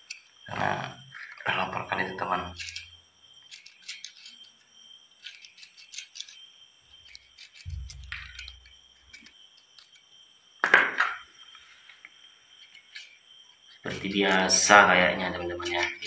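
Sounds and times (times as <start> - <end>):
crickets chirring: 0.0 - 16.0
cooking gear clicking and rattling: 2.6 - 4.5.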